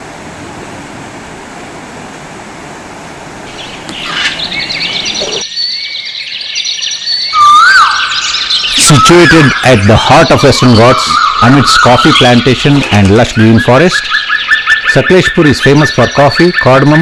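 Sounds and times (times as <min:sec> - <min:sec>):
birds chirping and whistling: 0:03.5 - 0:17.0.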